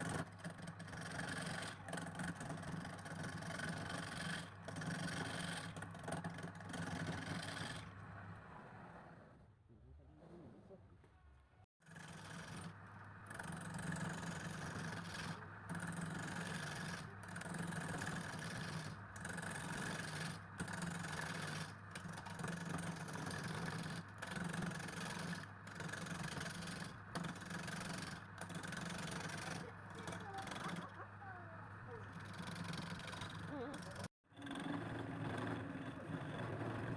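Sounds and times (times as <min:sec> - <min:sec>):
motor-driven machine humming: 0:21.9 - 0:34.9.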